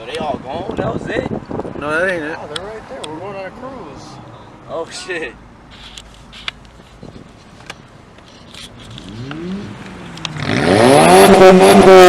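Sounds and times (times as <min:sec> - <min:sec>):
car engine revving: 0:08.7 - 0:12.0.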